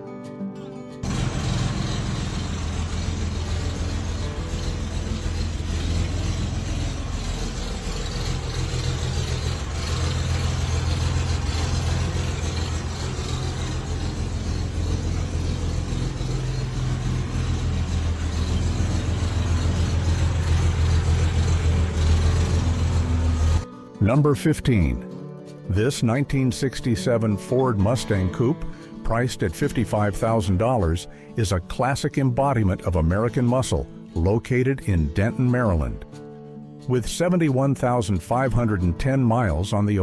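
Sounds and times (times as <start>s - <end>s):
car engine running steadily: 1.0s - 23.6s.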